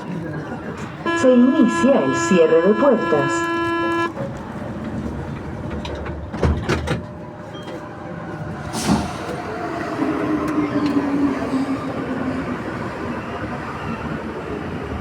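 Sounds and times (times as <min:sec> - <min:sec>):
low steady train hum: 0:00.0 - 0:15.0
train doors sliding shut: 0:04.2 - 0:07.9, 0:08.5 - 0:11.8.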